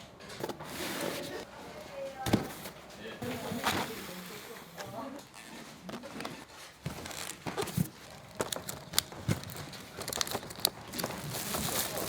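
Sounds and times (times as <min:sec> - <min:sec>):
plastic containers clicking and knocking: 0:05.9 - 0:12.0
packaging crinkling: 0:06.9 - 0:12.0.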